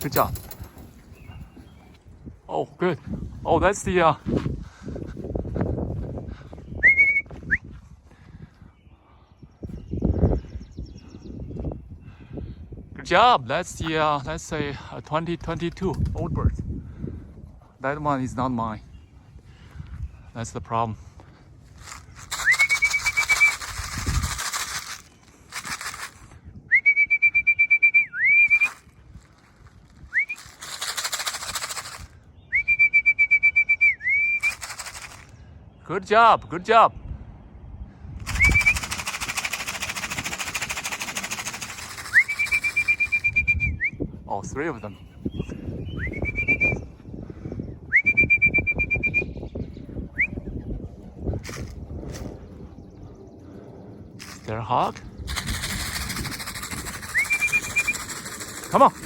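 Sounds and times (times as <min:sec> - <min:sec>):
trilling whistle blasts: 0:06.8 - 0:07.7, 0:22.4 - 0:23.6, 0:26.7 - 0:28.8, 0:32.5 - 0:34.6, 0:38.3 - 0:38.9, 0:42.0 - 0:44.0, 0:45.9 - 0:46.9, 0:47.9 - 0:49.4, 0:57.0 - 0:58.1
pigeon wings flapping: 0:21.9 - 0:26.3, 0:30.3 - 0:32.1, 0:34.4 - 0:35.3, 0:38.3 - 0:43.3, 0:55.3 - 0:59.0.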